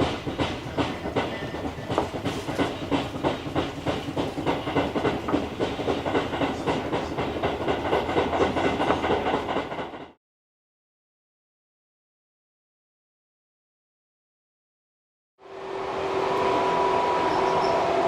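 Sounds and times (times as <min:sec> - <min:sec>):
train rumble: 0:00.0 - 0:10.2, 0:15.4 - 0:18.0
train wheels clacking on rail joints: 0:00.0 - 0:10.2.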